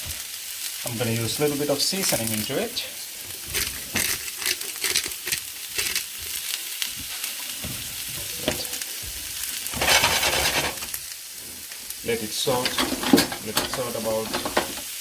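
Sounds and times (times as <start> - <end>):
onions sizzling in a pan: 0.0 - 15.0
utensil stirring and scraping: 3.2 - 6.4, 9.7 - 11.0.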